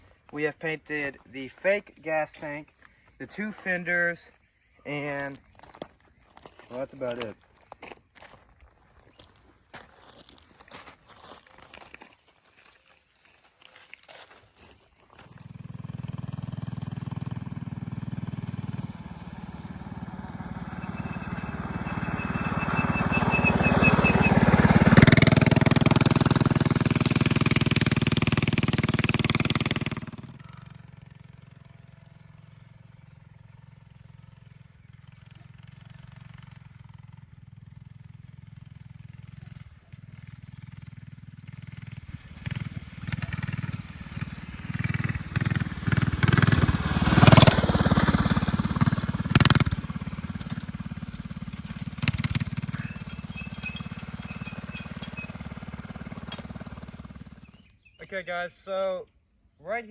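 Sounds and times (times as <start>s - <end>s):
minibike engine under throttle: 14.8s - 57.9s.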